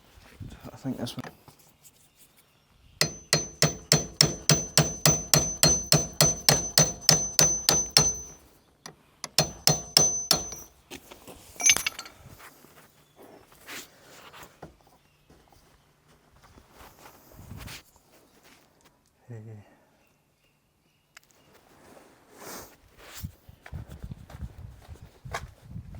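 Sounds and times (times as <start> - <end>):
hammer striking metal: 3.0 - 8.4, 9.3 - 10.7, 11.6 - 12.1
handling of tools: 3.0 - 8.4, 9.2 - 12.4
short metallic jingle: 11.6 - 12.2.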